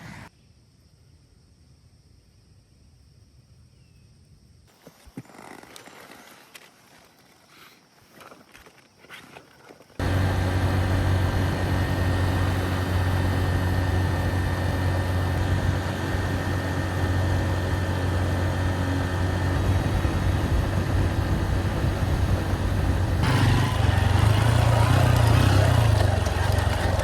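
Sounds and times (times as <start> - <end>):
motorcycle engine running: 10.0 - 27.0.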